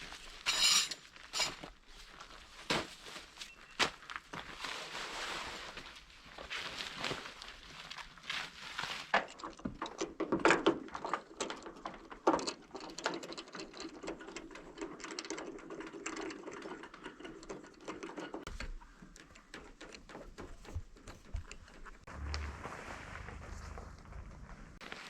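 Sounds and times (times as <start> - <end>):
mechanical clicking and rattling: 9.4 - 22.1.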